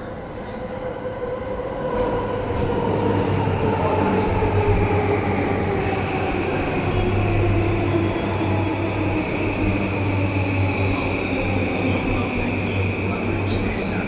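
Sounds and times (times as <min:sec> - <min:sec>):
train running gear rumble: 0:00.0 - 0:14.0.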